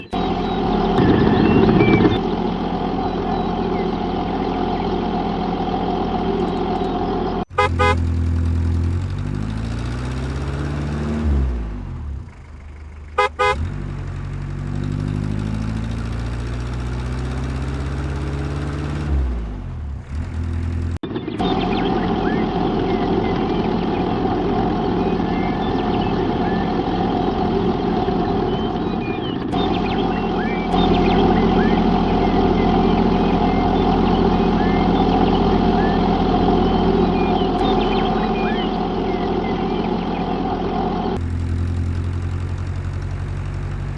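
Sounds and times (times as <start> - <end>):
short beeping bursts: 0.0 - 2.3
small motors running: 0.0 - 7.0, 7.6 - 11.3, 19.9 - 43.9.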